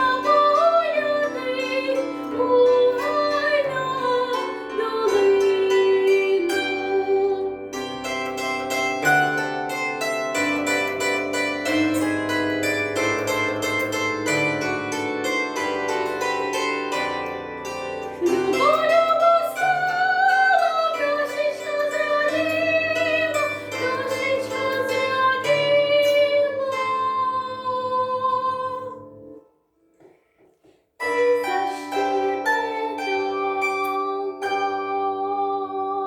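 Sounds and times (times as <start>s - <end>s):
woman singing with vibrato: 0.0s - 7.6s, 18.1s - 29.1s, 31.0s - 36.0s
instrumental accompaniment of repeated notes: 7.6s - 18.8s.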